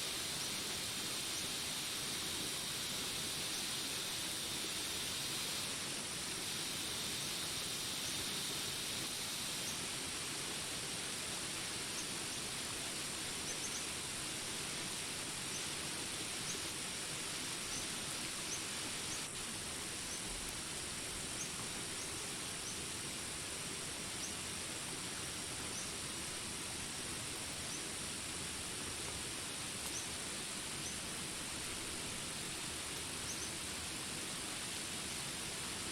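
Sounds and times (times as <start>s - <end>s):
high insect drone: 0.0s - 35.8s
steady rain hiss: 0.0s - 35.9s.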